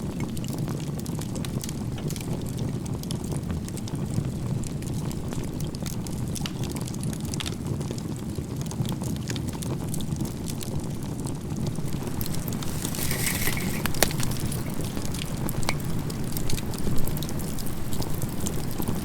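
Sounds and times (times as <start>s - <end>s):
campfire crackling and popping: 0.3s - 19.0s
fire low rumble: 7.4s - 19.0s.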